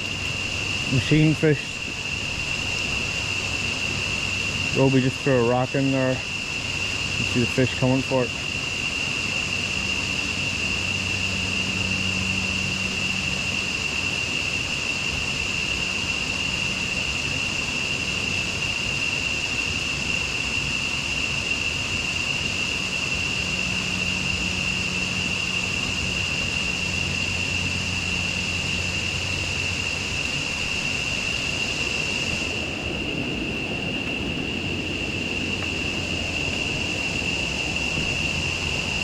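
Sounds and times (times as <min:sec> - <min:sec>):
moving water hiss: 0:00.0 - 0:39.0.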